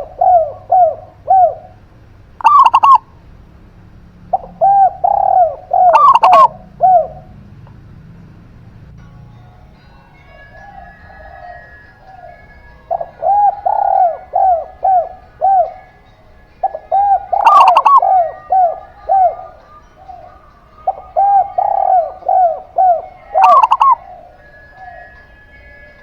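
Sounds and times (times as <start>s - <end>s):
doves cooing: 0.0s - 3.1s, 4.3s - 7.4s, 10.2s - 26.0s
higher louder bird notes: 4.3s - 7.4s, 9.5s - 26.0s.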